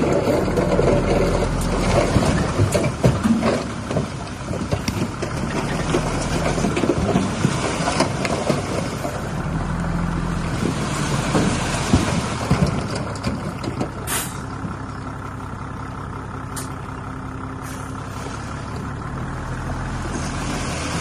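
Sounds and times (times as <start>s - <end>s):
heavy diesel engine under load: 0.0s - 21.0s
machine clanks and knocks: 0.4s - 7.5s.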